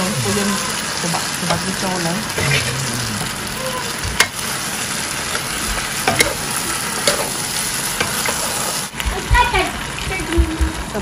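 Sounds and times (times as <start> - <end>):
food sizzling in a wok: 0.0 - 11.0
utensils clinking against pan: 5.3 - 7.4.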